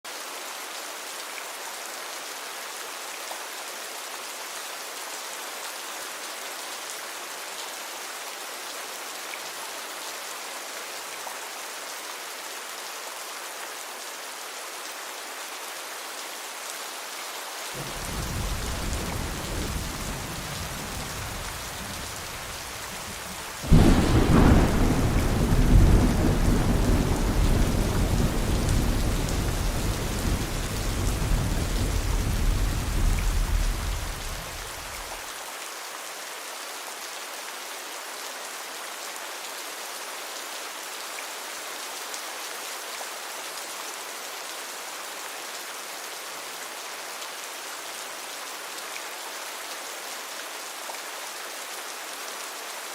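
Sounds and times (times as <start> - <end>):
steady rain: 0.0 - 52.9
thunder rumbling: 17.8 - 35.0.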